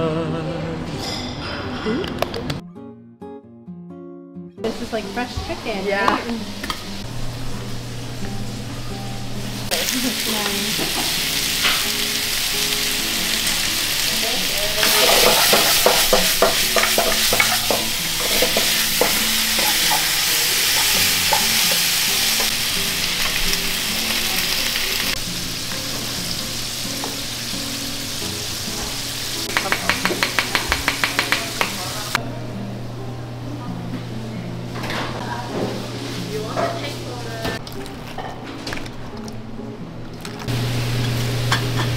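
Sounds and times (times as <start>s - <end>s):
food sizzling in hot oil: 9.2s - 32.2s, 40.5s - 41.9s.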